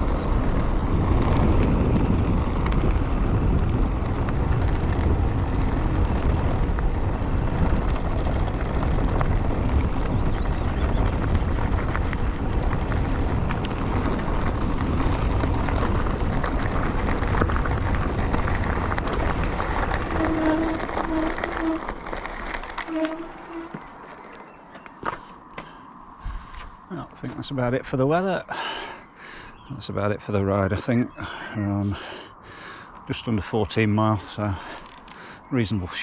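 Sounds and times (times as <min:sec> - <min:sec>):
wind noise on microphone: 0:00.0 - 0:24.0, 0:26.2 - 0:26.8
bike clicks and rattles: 0:00.0 - 0:25.3, 0:34.6 - 0:35.3.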